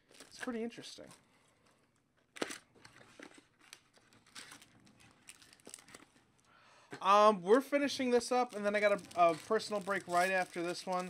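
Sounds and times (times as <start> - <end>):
wrappers and cards rustling: 0.0 - 6.5, 7.8 - 11.0
sharp wrapper crackle: 3.5 - 6.5, 8.1 - 11.0.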